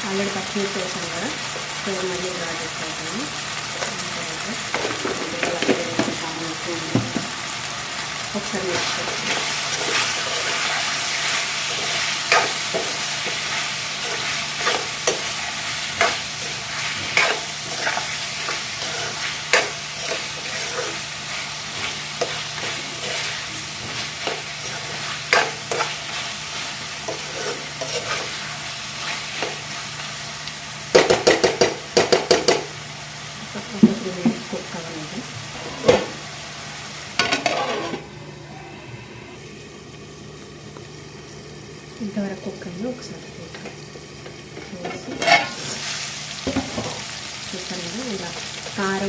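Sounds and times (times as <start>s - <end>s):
curry sizzling in a pan: 0.0s - 38.5s, 39.4s - 49.0s
spoon scraping and knocking pan: 11.6s - 21.1s, 31.0s - 32.7s, 37.2s - 38.0s, 44.6s - 45.7s.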